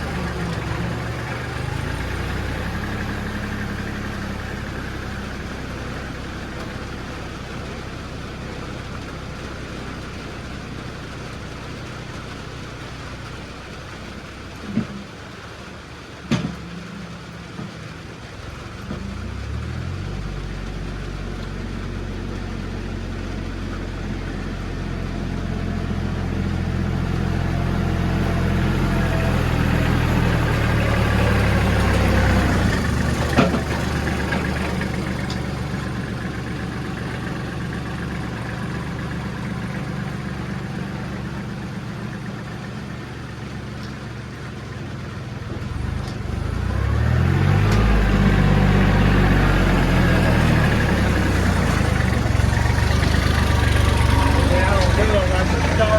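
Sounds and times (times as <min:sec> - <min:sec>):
vehicle engine revving: 0:00.0 - 0:10.1, 0:17.2 - 0:55.9.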